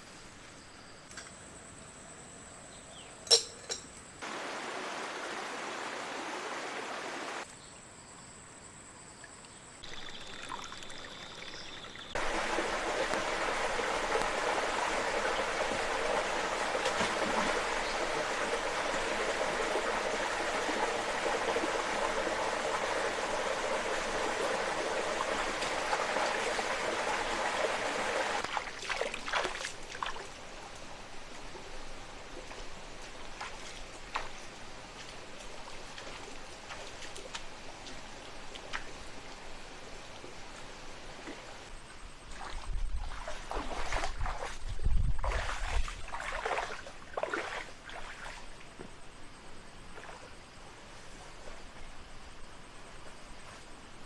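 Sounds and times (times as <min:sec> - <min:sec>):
water trickling: 0:09.2 - 0:30.4.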